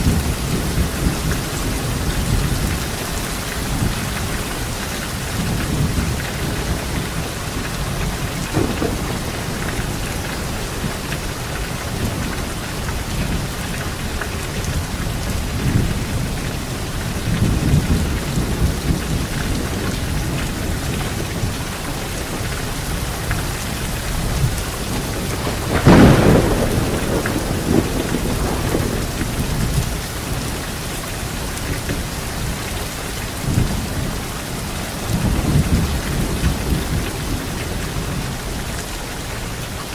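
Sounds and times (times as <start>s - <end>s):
low rolling thunder: 0.0s - 38.7s
light rain on leaves: 0.0s - 39.9s
sharp thunderclap: 5.4s - 12.5s, 24.0s - 30.5s.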